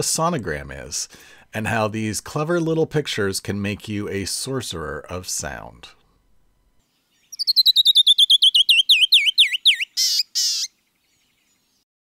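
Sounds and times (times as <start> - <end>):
songbird whistled song: 6.8 - 11.8.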